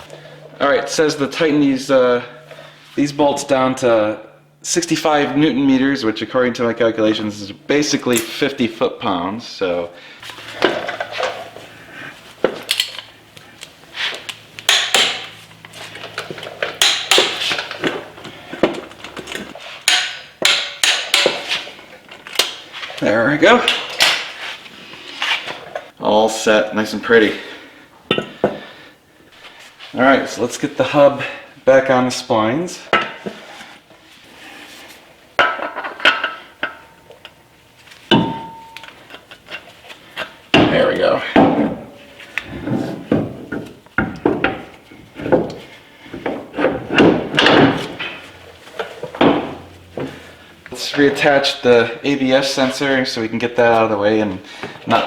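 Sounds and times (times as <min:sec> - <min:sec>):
hammer striking metal hub: 0:14.7 - 0:15.3, 0:16.8 - 0:17.4, 0:19.9 - 0:21.4, 0:38.1 - 0:39.0.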